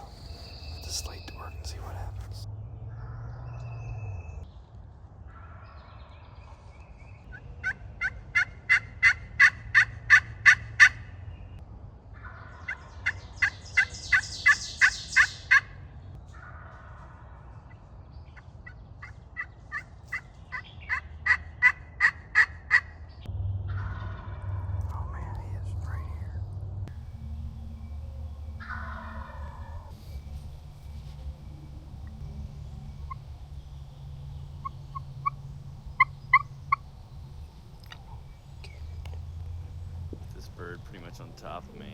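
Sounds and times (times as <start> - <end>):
slate turkey call yelps: 7.6 - 11.0, 12.3 - 15.7, 18.6 - 22.9, 28.6 - 29.9, 36.0 - 36.5.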